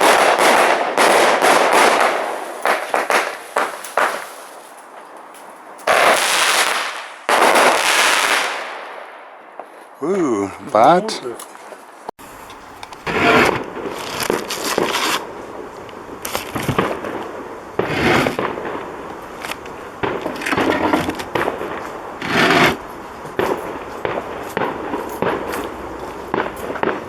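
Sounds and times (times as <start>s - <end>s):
firework cake blasts: 0.0s - 4.6s, 13.0s - 27.0s.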